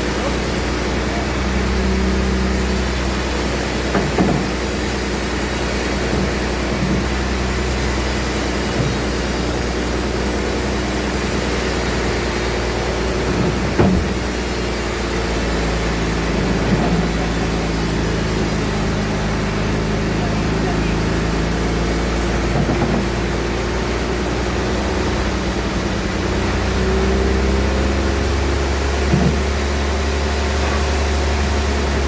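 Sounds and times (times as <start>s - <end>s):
band saw running: 0.0s - 32.0s
short knocks: 3.7s - 10.3s, 11.1s - 17.8s, 26.6s - 29.9s.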